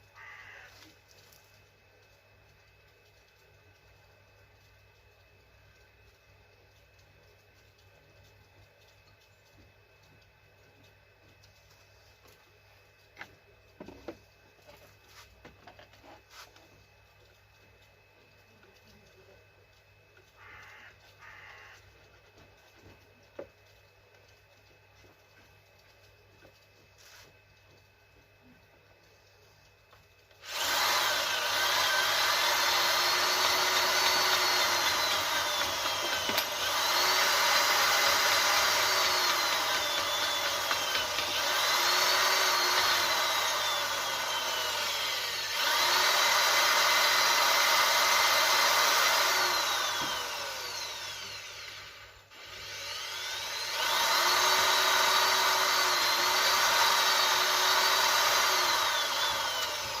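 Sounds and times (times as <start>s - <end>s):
electric drill motor whine: 20.4s - 21.8s, 30.4s - 60.0s.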